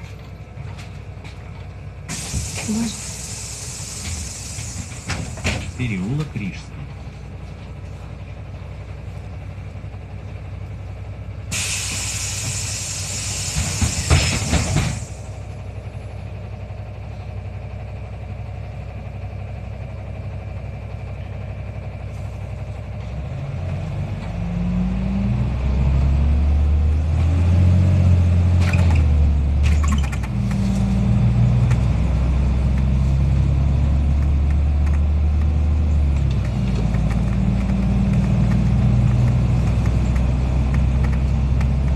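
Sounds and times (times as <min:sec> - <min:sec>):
bus diesel engine: 0:00.0 - 0:41.9
compressed air hiss: 0:02.1 - 0:05.8, 0:11.5 - 0:15.3.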